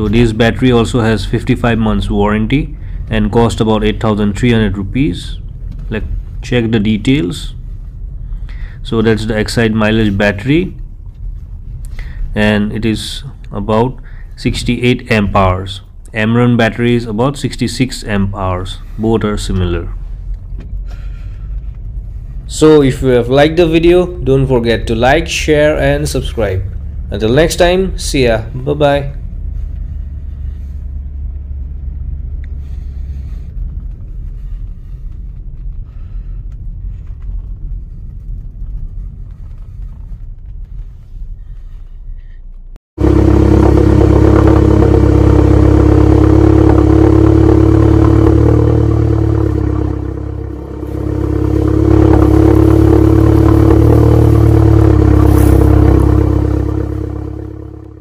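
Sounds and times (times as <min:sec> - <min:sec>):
loud car engine: 0:00.0 - 0:11.2, 0:21.6 - 0:35.2, 0:43.0 - 0:58.0
engine and road rumble: 0:00.0 - 0:58.0.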